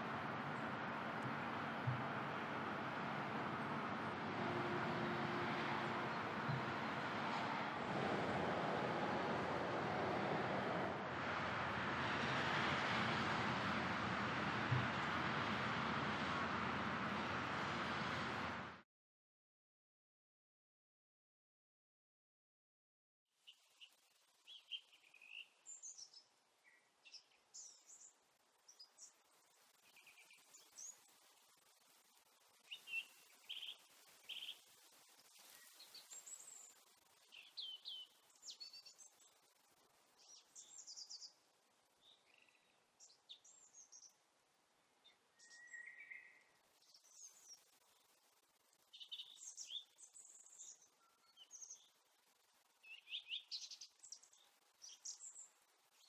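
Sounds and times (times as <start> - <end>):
faint songbirds chirping: 0.0 - 18.8, 23.4 - 56.0
steady background hiss: 27.5 - 45.7.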